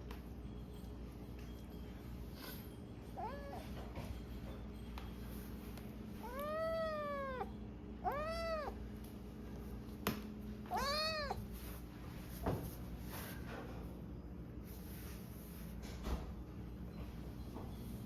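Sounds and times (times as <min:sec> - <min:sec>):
kitten meowing: 0:06.2 - 0:08.8, 0:10.7 - 0:11.5.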